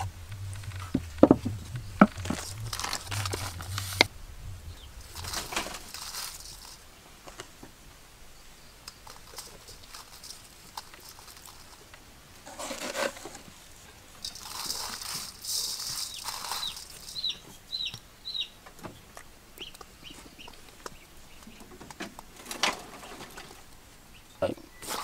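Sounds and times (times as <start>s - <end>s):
bird chirping: 0.0s - 7.2s, 14.2s - 22.0s, 24.0s - 25.0s
rustling: 0.0s - 24.1s.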